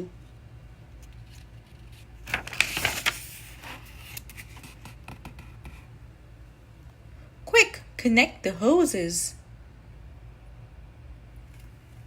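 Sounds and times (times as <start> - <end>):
steady low hum: 0.0 - 12.0
paper page turning: 1.0 - 5.5.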